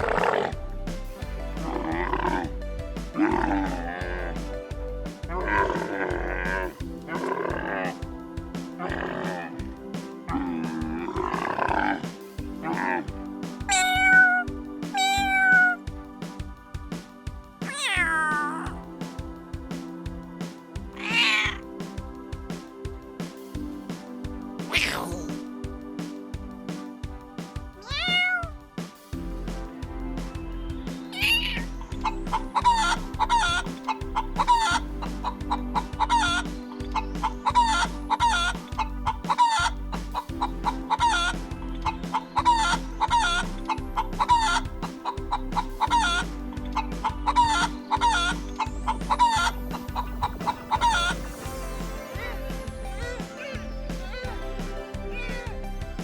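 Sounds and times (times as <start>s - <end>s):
background music with beat: 0.0s - 56.0s
chicken squawk: 32.6s - 33.7s, 34.4s - 34.8s, 35.8s - 36.5s, 37.2s - 41.4s, 42.1s - 43.5s, 45.3s - 46.3s, 47.3s - 49.5s, 50.2s - 51.2s
chickens clucking: 32.6s - 51.4s.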